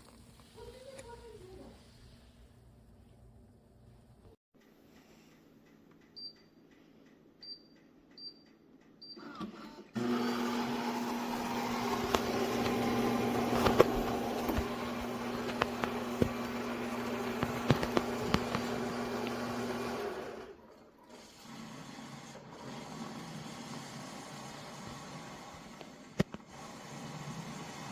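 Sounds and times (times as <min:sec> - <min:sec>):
espresso machine motor running: 0:10.0 - 0:20.6.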